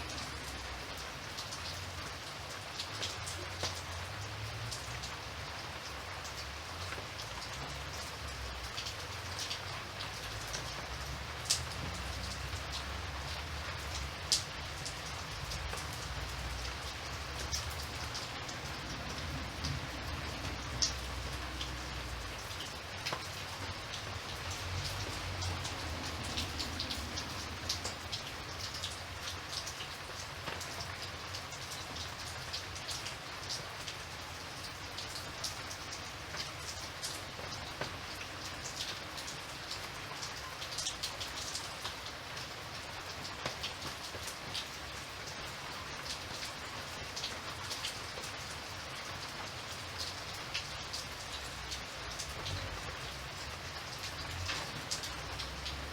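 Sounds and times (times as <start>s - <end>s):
rain on a hard surface: 0.0s - 55.9s.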